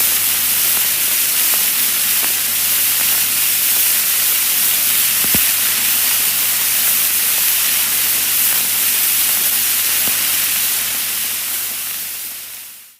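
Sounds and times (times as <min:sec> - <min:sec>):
vinyl crackling hiss: 0:00.0 - 0:12.9
vinyl pops: 0:01.3 - 0:07.1, 0:10.0 - 0:10.3.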